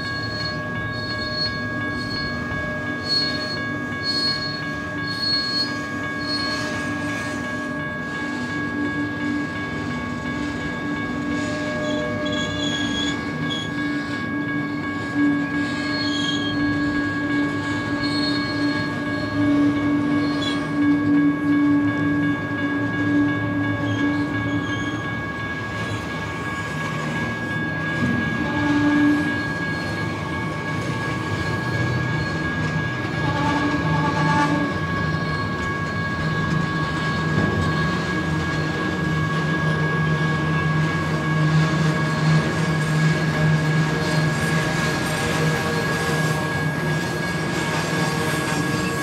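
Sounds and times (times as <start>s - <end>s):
high-pitched wheel squeal: 0.0s - 9.4s, 11.2s - 21.9s, 22.8s - 25.1s, 28.0s - 38.9s, 40.7s - 49.0s
train wheels rumbling: 0.0s - 49.0s.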